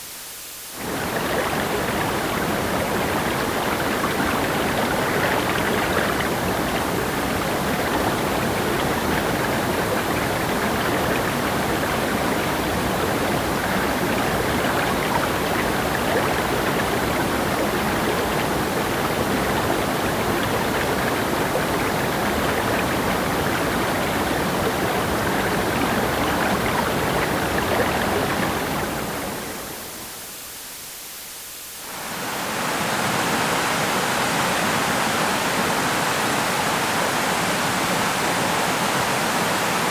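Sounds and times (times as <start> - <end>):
river water rushing: 0.8 - 30.1.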